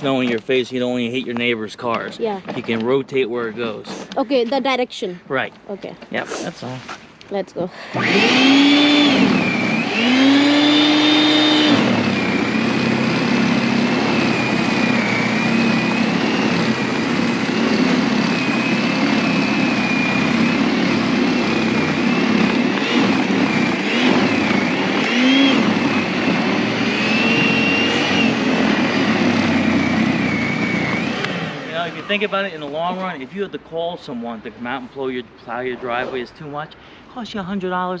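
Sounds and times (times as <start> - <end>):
electric snow blower motor whine: 7.9 - 33.4.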